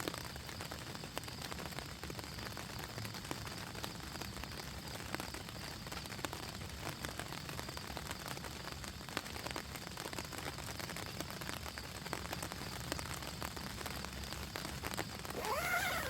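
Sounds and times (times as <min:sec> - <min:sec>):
rain falling: 0:00.0 - 0:16.0
pitched call: 0:15.4 - 0:16.0.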